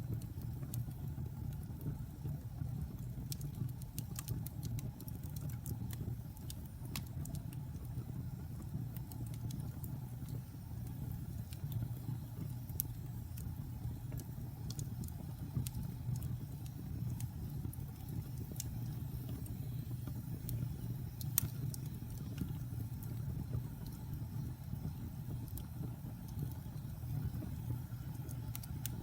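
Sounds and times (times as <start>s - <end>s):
fire crackling and popping: 0.0s - 29.0s.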